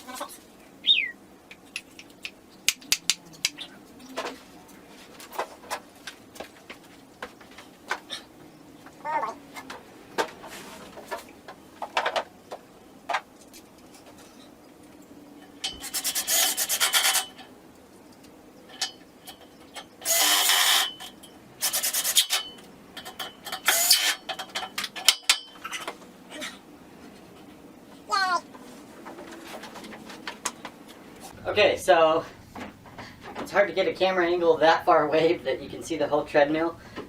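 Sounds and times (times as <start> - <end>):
short rasping bursts: 15.8 - 17.4, 21.6 - 22.5.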